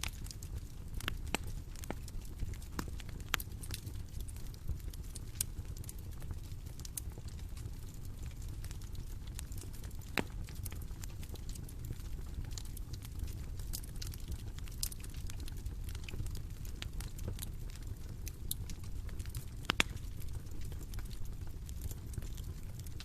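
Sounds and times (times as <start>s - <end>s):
bonfire crackling: 0.0s - 23.0s
loud fire pops: 8.1s - 23.0s.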